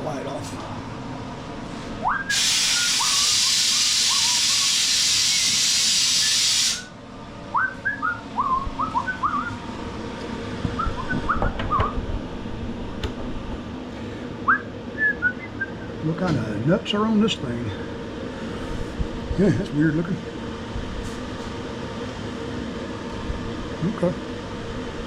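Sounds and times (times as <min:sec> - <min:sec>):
rising whistled chirps: 0:02.0 - 0:06.9, 0:07.5 - 0:09.6, 0:14.4 - 0:16.0
loud steady hiss: 0:02.3 - 0:07.0.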